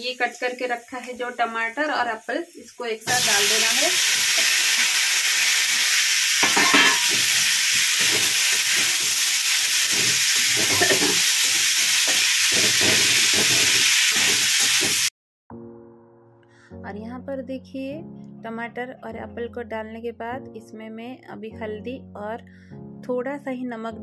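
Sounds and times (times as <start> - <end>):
food sizzling in hot oil: 0.0 - 15.1
metal spatula scraping pan: 6.4 - 9.1, 9.8 - 11.3, 12.1 - 15.1.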